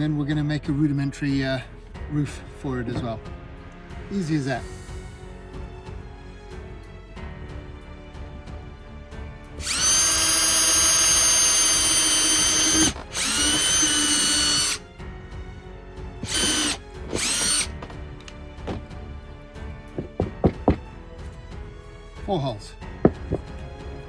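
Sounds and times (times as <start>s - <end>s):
electric drill drilling wood: 9.6s - 14.8s, 16.2s - 18.0s.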